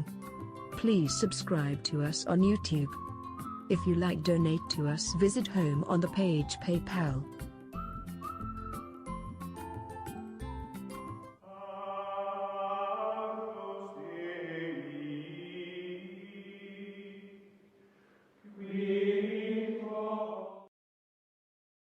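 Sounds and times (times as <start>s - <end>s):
choir-like chanting: 11.4s - 17.5s, 18.5s - 20.7s.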